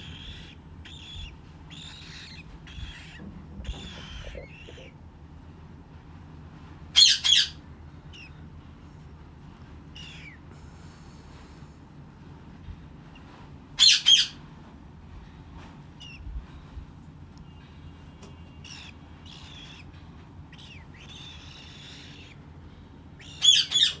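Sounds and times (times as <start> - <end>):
cockatiel chirps: 0.0 - 4.9, 10.0 - 10.4, 18.6 - 19.9, 20.5 - 22.4, 23.2 - 24.0
cockatiel squawks: 0.0 - 4.9, 7.0 - 7.6, 13.8 - 14.4, 18.6 - 19.9, 23.2 - 24.0.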